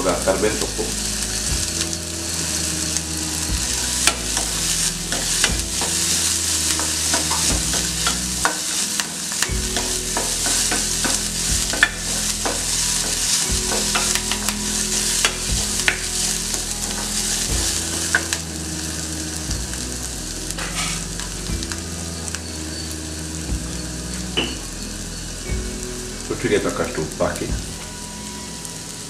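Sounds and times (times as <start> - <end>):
vegetables sizzling in hot oil: 0.0 - 29.0
spatula stirring in a pan: 1.7 - 20.0.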